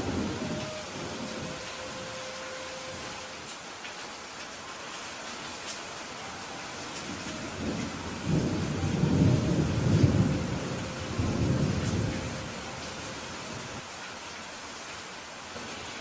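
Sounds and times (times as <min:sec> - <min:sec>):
rolling thunder rumble: 0:00.0 - 0:02.1, 0:07.1 - 0:13.8
steady rainfall: 0:00.0 - 0:16.0.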